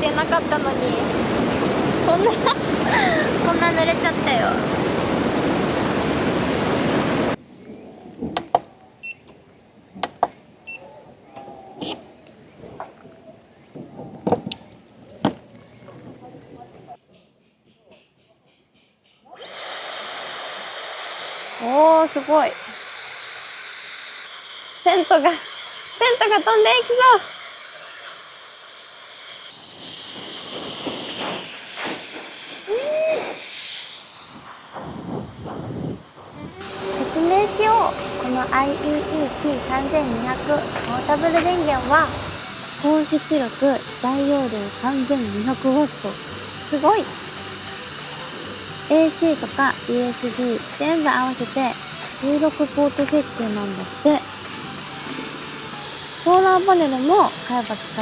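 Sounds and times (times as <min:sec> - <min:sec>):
rushing river water: 0:00.0 - 0:07.4
wind gusting: 0:00.0 - 0:08.4, 0:29.4 - 0:45.4.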